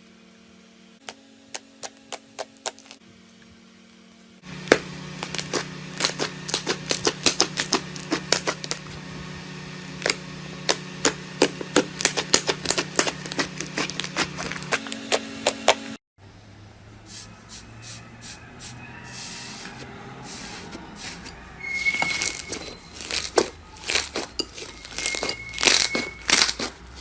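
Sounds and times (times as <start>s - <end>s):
steady low hum: 0.5s - 17.5s
crunchy slime crackling pops: 23.0s - 26.8s.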